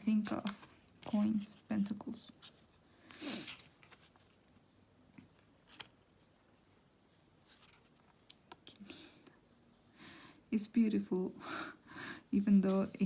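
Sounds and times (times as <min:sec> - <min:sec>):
cards rustling: 0:00.0 - 0:01.6, 0:02.3 - 0:04.6, 0:05.2 - 0:06.5, 0:07.4 - 0:08.8, 0:12.5 - 0:13.0.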